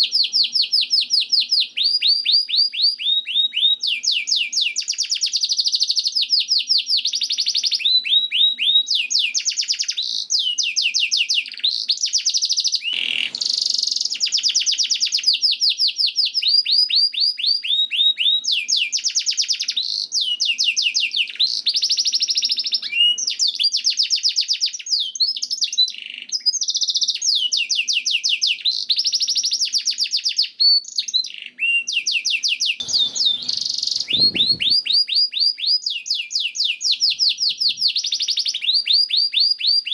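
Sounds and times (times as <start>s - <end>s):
canary singing trills: 30.9s - 35.7s
brief rustling: 32.8s - 35.0s.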